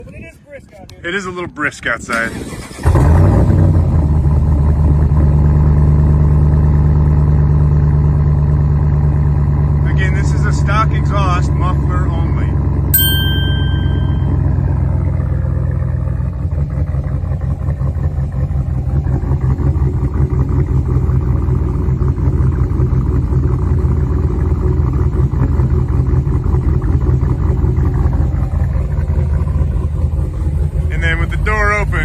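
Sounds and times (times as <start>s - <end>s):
engine idling with choppy rumble: 4.0s - 12.9s, 15.0s - 32.0s.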